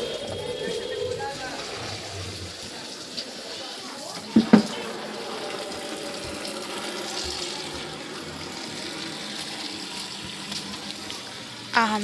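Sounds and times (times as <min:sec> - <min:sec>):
water running onto plants: 0:00.0 - 0:12.0.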